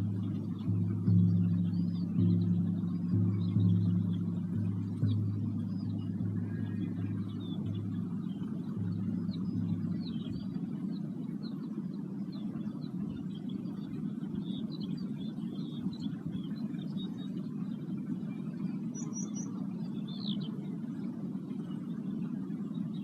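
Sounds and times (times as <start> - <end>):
low ringing tone: 0.0 - 11.6
small birds chirping: 0.0 - 23.0
steady low rumble: 0.0 - 23.0.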